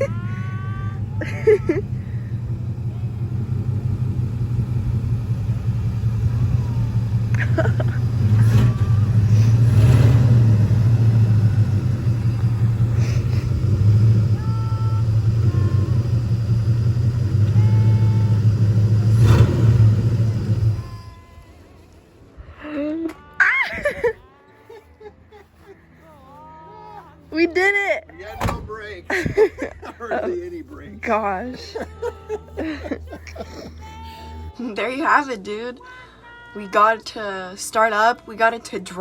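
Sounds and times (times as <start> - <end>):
pickup truck engine running: 0.0 - 21.7, 28.4 - 35.5.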